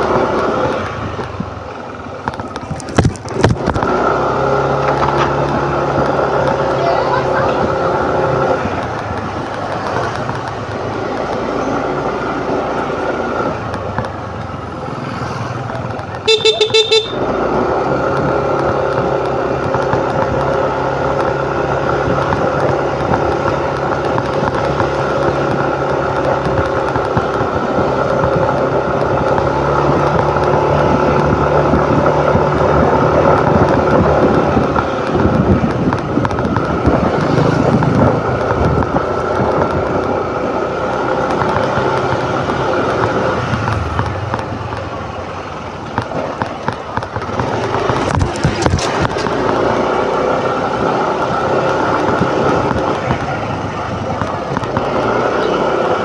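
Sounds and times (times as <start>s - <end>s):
motor scooter running: 0.0s - 56.0s
vehicle horn beeps: 16.2s - 17.4s
wind on microphone: 18.2s - 56.0s.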